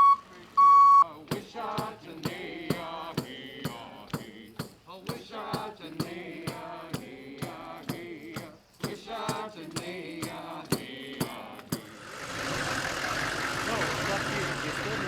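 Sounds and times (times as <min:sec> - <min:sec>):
vehicle engine: 0:00.0 - 0:01.0, 0:11.7 - 0:15.0
steady drum beat: 0:01.2 - 0:15.0.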